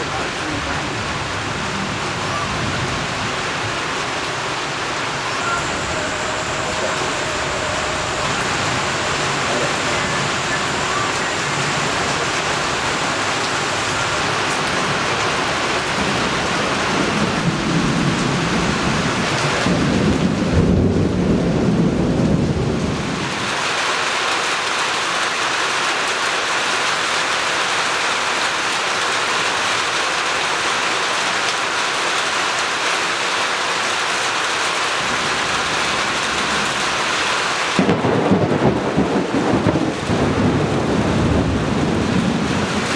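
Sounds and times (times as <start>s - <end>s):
heavy rain pouring: 0.0s - 42.9s
thunder rolling: 0.5s - 23.4s, 35.0s - 42.9s.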